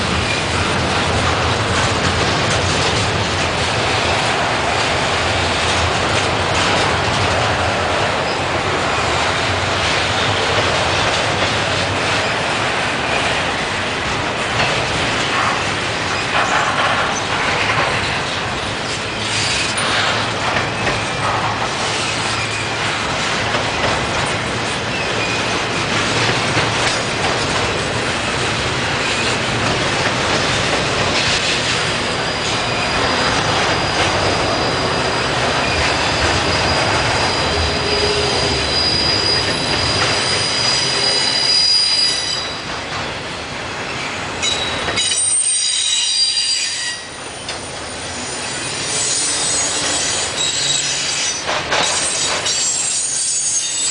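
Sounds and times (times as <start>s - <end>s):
train wheels clattering on rails: 0.0s - 53.9s
high-pitched wheel squeal: 32.2s - 42.6s, 44.4s - 47.1s, 48.2s - 51.4s, 52.0s - 53.9s.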